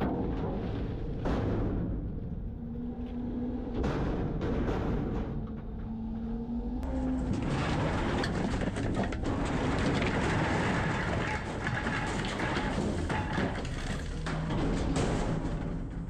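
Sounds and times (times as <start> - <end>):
garbage truck rumbling: 0.0 - 16.0
clattering and rattling: 6.8 - 16.0.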